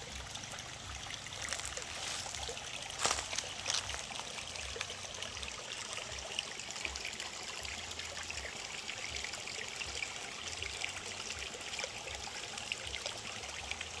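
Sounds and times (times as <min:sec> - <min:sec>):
water trickling: 0:00.0 - 0:14.0
small splashy crackles: 0:01.2 - 0:05.1.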